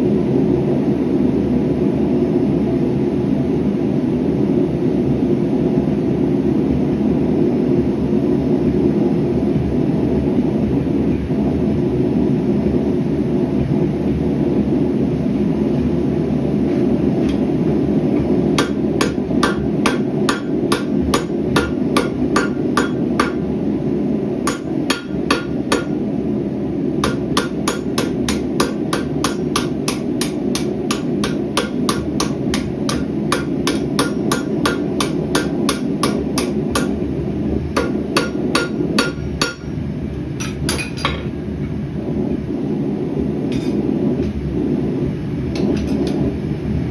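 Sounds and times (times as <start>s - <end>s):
gas forge roaring: 3.0s - 46.9s
hammer ringing on anvil: 18.6s - 23.4s, 24.5s - 26.0s, 27.0s - 37.0s, 37.8s - 39.8s.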